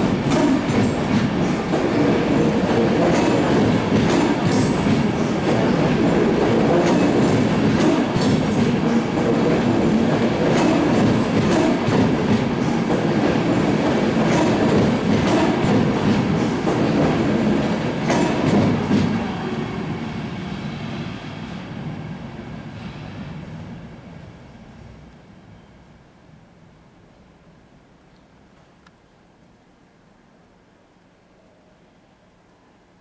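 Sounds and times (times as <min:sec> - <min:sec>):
rail joint clicks: 0:00.0 - 0:19.3
train wheel rumble: 0:00.0 - 0:25.2.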